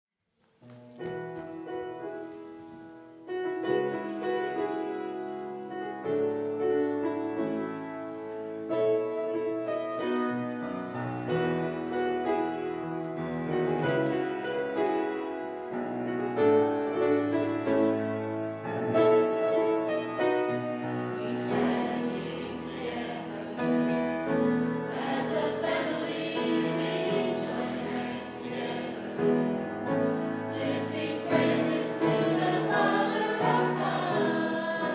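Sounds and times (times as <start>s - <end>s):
youth choir singing a hymn: 20.9s - 34.9s.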